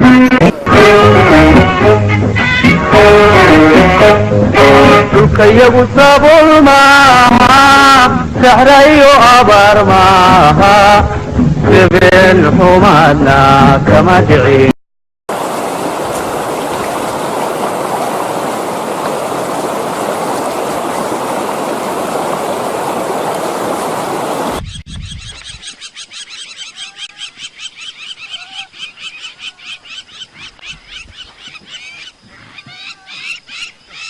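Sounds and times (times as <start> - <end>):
loud steady rushing noise: 15.3 - 24.6
high-pitched animal calls: 24.6 - 34.0.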